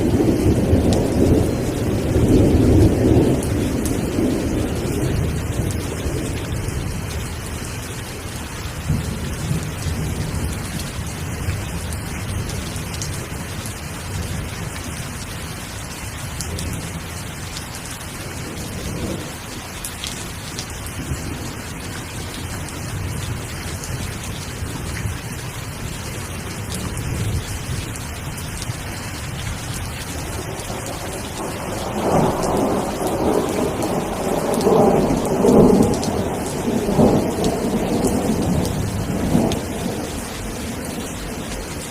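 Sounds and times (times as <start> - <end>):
thunder rumbling: 0.0 - 15.0, 18.2 - 19.5, 28.6 - 41.9
rain falling: 0.0 - 41.9.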